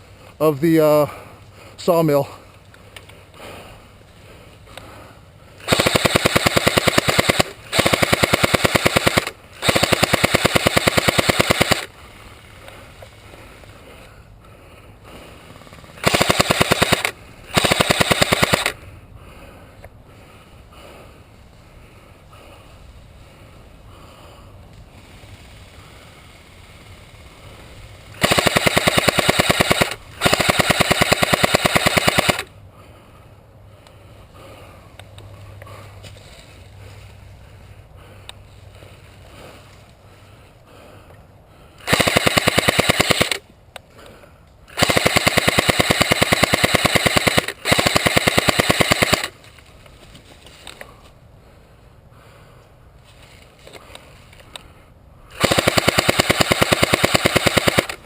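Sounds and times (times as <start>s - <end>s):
airsoft gun full-auto bursts: 5.6s - 12.0s, 15.5s - 18.8s, 28.0s - 32.5s, 41.8s - 43.4s, 44.7s - 49.4s, 55.3s - 58.0s.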